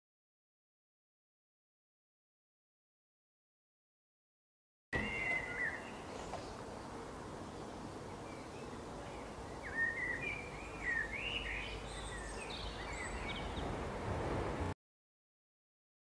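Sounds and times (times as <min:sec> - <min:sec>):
small birds chirping: 0:05.0 - 0:13.8
outdoor background hiss: 0:05.0 - 0:14.8.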